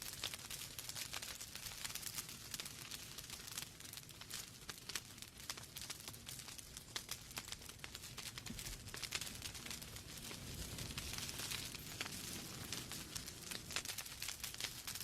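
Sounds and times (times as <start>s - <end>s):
flames hissing and rumbling: 0.0s - 15.0s
logs crackling and popping: 0.0s - 15.0s.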